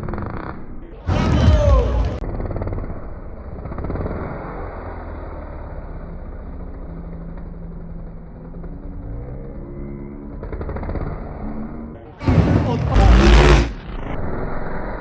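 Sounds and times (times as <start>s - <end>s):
motorbike revving: 2.1s - 14.2s
motorbike engines running: 2.2s - 13.8s.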